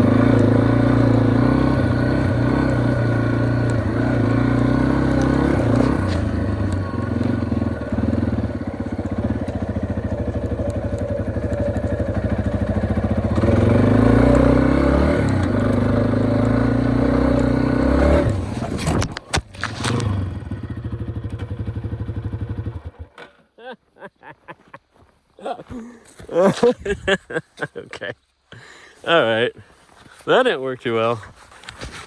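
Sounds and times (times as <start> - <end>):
motorcycle engine running: 0.0 - 23.1
engine sputter: 0.0 - 23.2.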